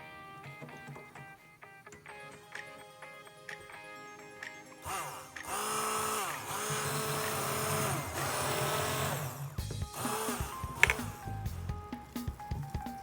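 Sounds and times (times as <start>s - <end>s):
background music: 0.0s - 13.0s
small motor appliance whirring: 4.8s - 11.3s.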